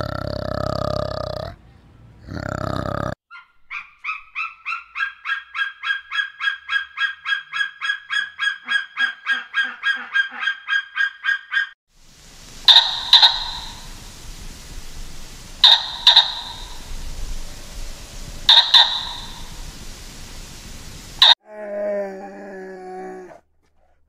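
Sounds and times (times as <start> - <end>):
large animal grunting call: 0.0 - 1.6, 2.2 - 3.2
bird honking: 3.3 - 11.7, 12.4 - 21.4.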